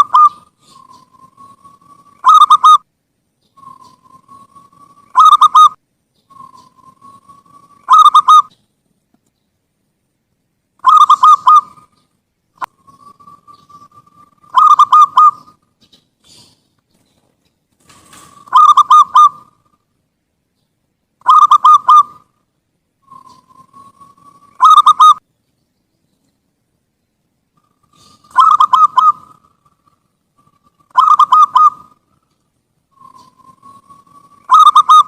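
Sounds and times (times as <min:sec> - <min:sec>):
dove cooing: 0:00.0 - 0:02.8, 0:03.5 - 0:08.5, 0:10.8 - 0:12.0, 0:12.6 - 0:15.6, 0:17.8 - 0:19.8, 0:21.2 - 0:22.3, 0:23.0 - 0:25.2, 0:27.6 - 0:32.2, 0:32.9 - 0:35.0.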